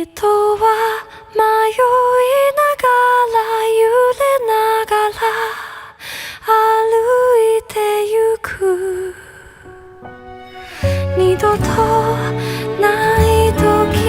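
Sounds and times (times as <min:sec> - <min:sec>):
woman singing long notes: 0:11.1 - 0:14.0.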